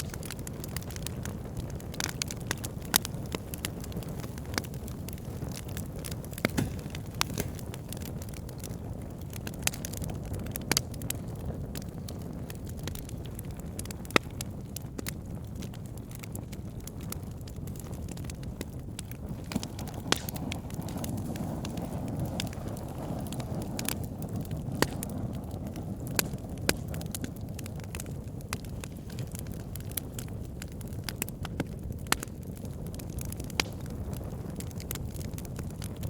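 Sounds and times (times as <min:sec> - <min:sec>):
fire low rumble: 0:00.0 - 0:36.0
logs crackling and popping: 0:00.0 - 0:36.0.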